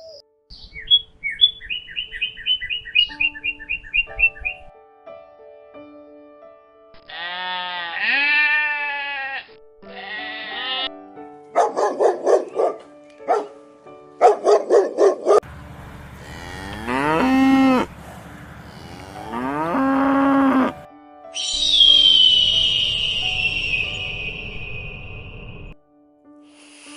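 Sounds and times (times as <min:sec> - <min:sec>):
background music: 0:00.0 - 0:17.9, 0:18.6 - 0:26.9
livestock bleating: 0:07.0 - 0:11.0, 0:16.2 - 0:20.8.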